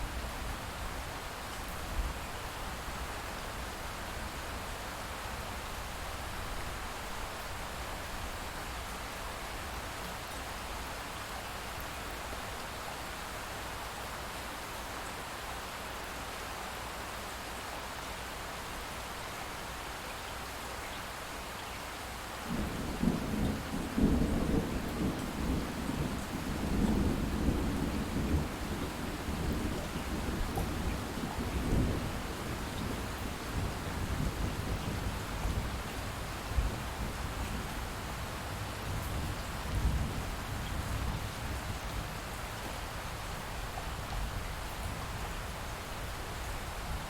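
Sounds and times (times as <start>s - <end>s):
light rain: 0.0s - 47.0s
distant thunder rumbling: 22.5s - 35.8s.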